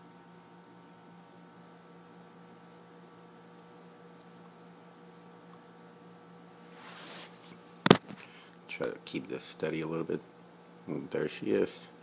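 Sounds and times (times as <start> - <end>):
electrical hum: 0.0 - 12.0
soft rustle: 6.6 - 7.6.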